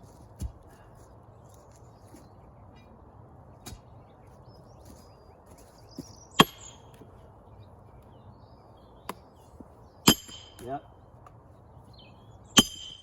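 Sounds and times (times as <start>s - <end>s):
sledgehammer clanging on steel wedge: 10.1s - 10.8s, 12.6s - 13.0s.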